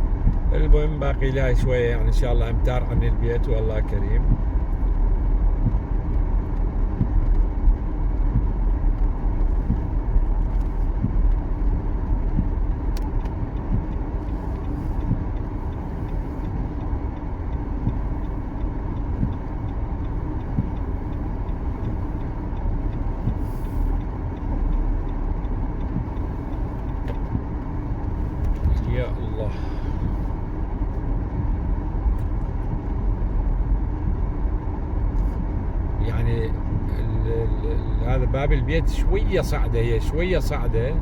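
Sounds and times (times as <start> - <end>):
car engine and tyres rumbling: 0.0 - 41.0.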